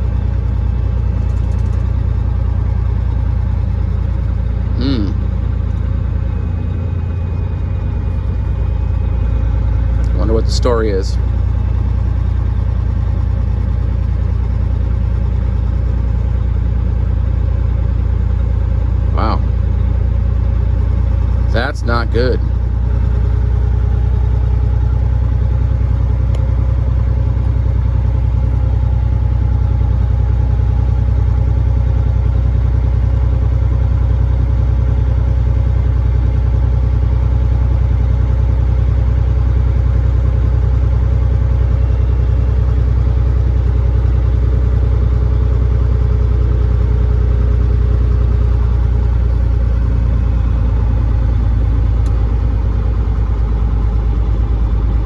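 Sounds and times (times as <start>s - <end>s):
diesel truck engine drone: 0.0s - 55.0s.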